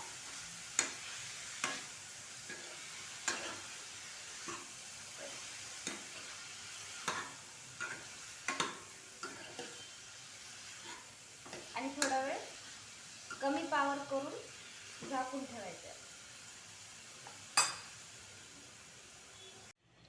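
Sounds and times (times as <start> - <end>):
faint sizzle of oil: 0.0 - 20.0.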